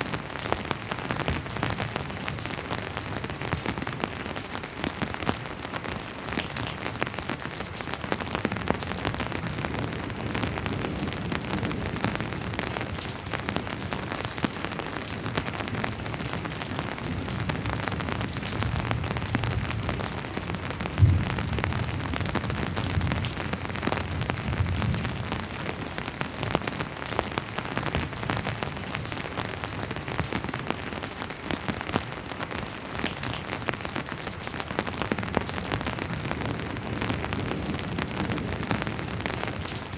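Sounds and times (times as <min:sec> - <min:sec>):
rain pattering on a surface: 0:00.0 - 0:39.9
distant thunder rumbling: 0:20.8 - 0:25.2.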